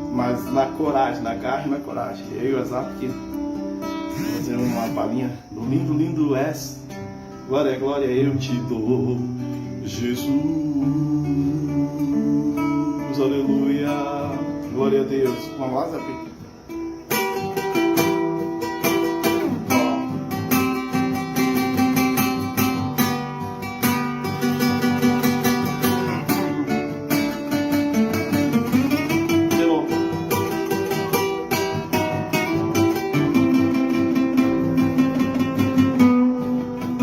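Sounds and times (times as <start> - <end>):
acoustic guitar strumming chords: 0.0 - 37.0.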